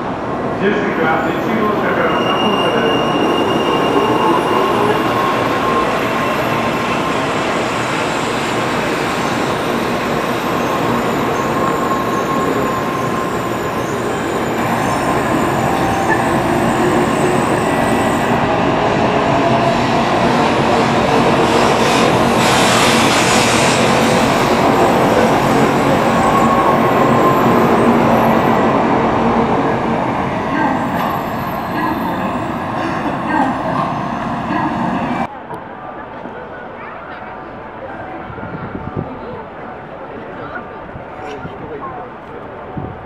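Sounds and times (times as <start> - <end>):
train wheels rushing: 2.1 - 35.3.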